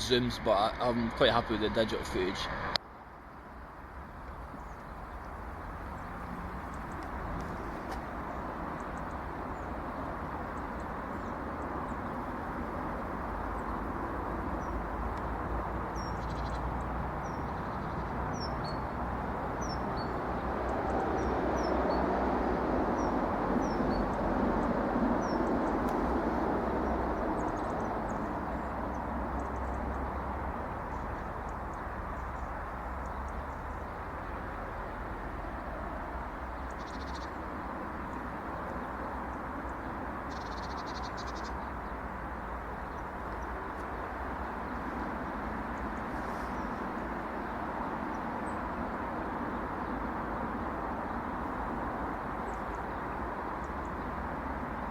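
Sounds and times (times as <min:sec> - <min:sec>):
steady low rush: 0:00.0 - 0:02.8.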